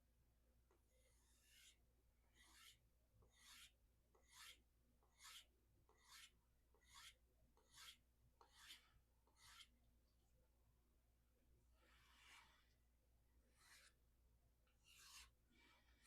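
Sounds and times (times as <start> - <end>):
knife stropping on leather: 2.4 - 3.7, 4.3 - 4.6, 5.2 - 9.7, 11.8 - 12.8, 13.5 - 14.0, 14.8 - 16.0.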